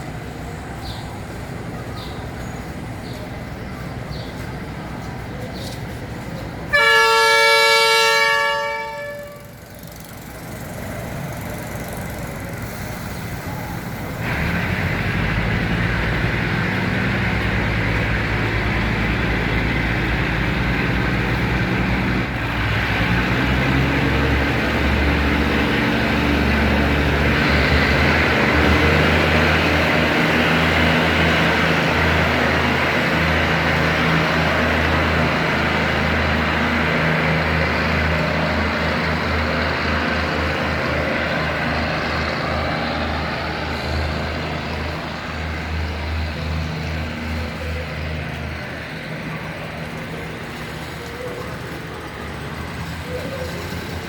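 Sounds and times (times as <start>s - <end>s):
train engine rumbling: 0.0s - 54.0s
diesel train horn blast: 6.7s - 9.6s.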